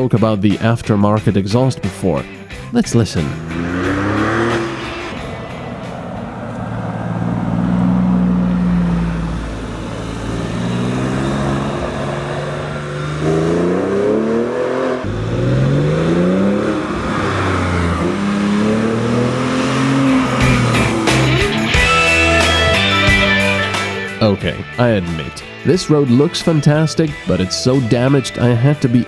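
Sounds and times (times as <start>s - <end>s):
car engine accelerating hard: 2.5s - 24.2s.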